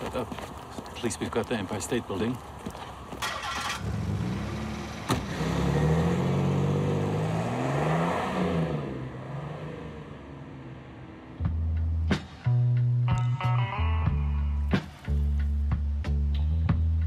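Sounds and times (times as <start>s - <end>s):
car engine accelerating: 3.2s - 12.0s.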